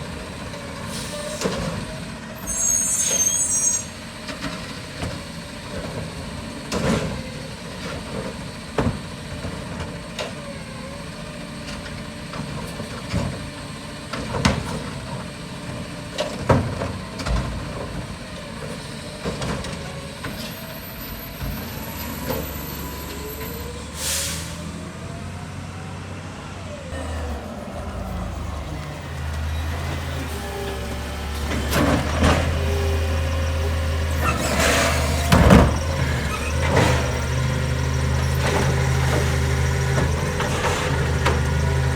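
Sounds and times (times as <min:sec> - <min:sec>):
diesel engine running: 0:03.9 - 0:41.9
air brake hiss: 0:23.6 - 0:24.8.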